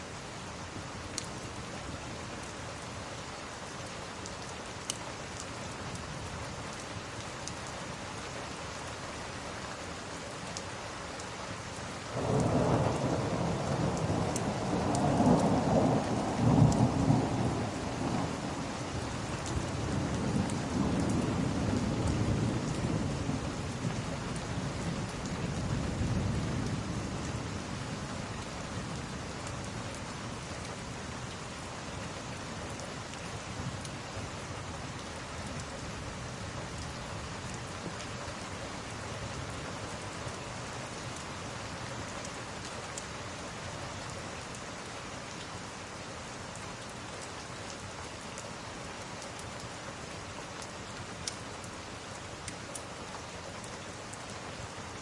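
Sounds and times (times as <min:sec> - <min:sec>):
steady rain: 0:00.0 - 0:55.0
thunder rumbling: 0:12.2 - 0:18.6.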